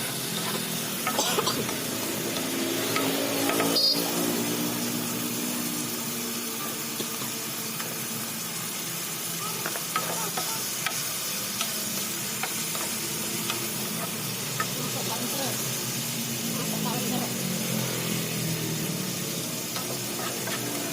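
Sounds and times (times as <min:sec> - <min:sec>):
food sizzling in a hot pan: 0:00.0 - 0:20.9
utensil clicking against pan: 0:09.6 - 0:11.8, 0:12.4 - 0:14.8.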